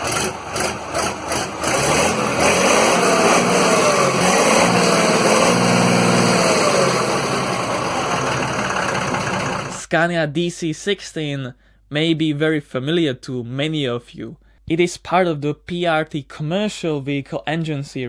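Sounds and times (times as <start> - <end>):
diesel truck engine revving: 0.0 - 9.8.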